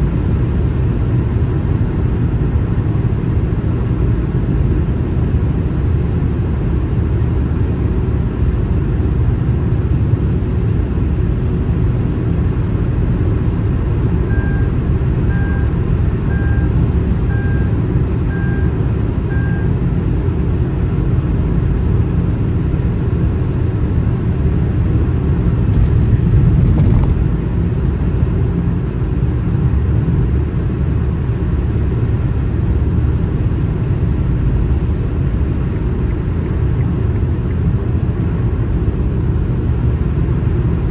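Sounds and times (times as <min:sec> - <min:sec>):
car road and engine rumble: 0:00.0 - 0:40.9
short electronic beeps: 0:14.2 - 0:19.7.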